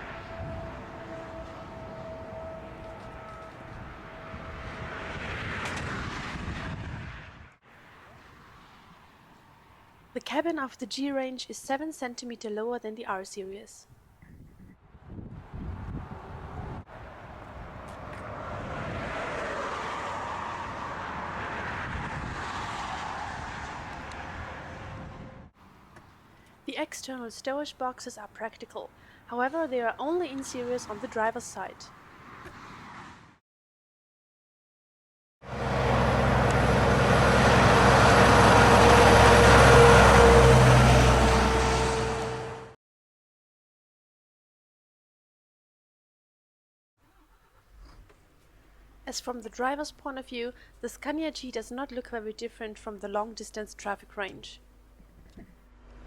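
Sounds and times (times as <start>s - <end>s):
truck engine driving: 0.0s - 7.5s, 35.5s - 42.8s
road noise: 0.0s - 12.4s, 14.9s - 33.4s, 35.4s - 42.8s, 47.1s - 56.0s.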